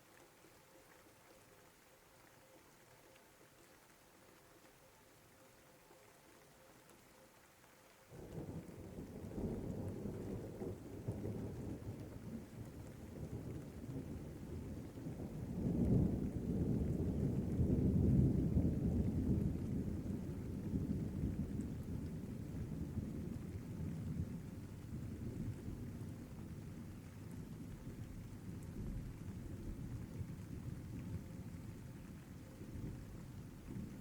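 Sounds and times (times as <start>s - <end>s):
rain: 0.0s - 34.0s
thunder rumble: 8.2s - 34.0s.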